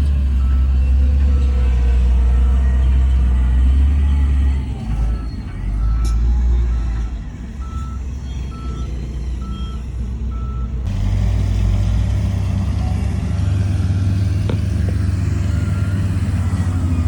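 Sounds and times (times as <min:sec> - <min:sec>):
heavy diesel machinery running: 0:00.0 - 0:17.0
reversing alarm beeping: 0:00.3 - 0:10.8, 0:15.2 - 0:17.0.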